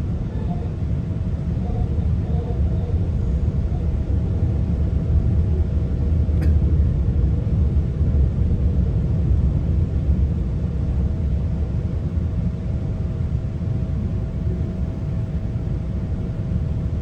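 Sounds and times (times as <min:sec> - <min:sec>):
faint steady hum: 0:00.0 - 0:17.0
train rumbling along track: 0:00.0 - 0:17.0
light click: 0:06.4 - 0:06.6.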